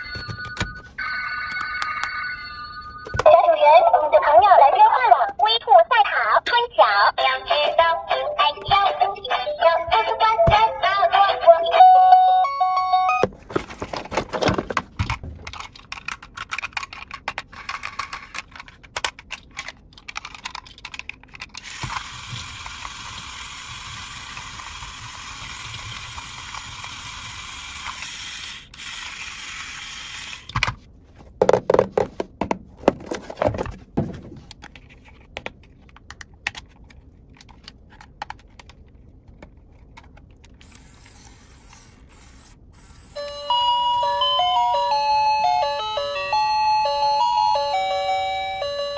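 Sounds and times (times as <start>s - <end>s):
plastic toy parts clicking: 15.1s - 27.2s, 34.5s - 41.9s.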